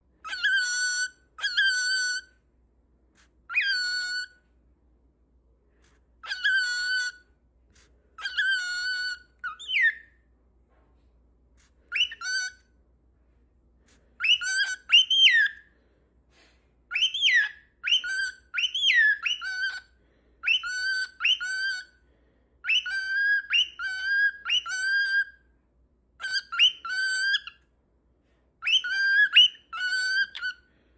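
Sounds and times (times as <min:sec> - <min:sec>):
cockatiel whistling: 0:00.2 - 0:02.4, 0:03.5 - 0:04.5, 0:06.2 - 0:10.2, 0:11.6 - 0:12.7, 0:14.2 - 0:15.6, 0:16.9 - 0:22.0, 0:22.6 - 0:25.4, 0:26.2 - 0:27.6, 0:28.6 - 0:30.6.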